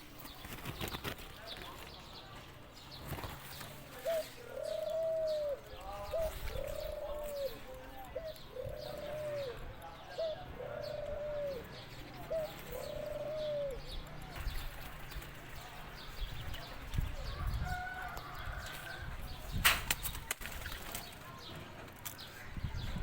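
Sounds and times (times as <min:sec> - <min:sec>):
dove cooing: 0:00.0 - 0:15.1
faint high chirps of small birds: 0:00.0 - 0:23.0.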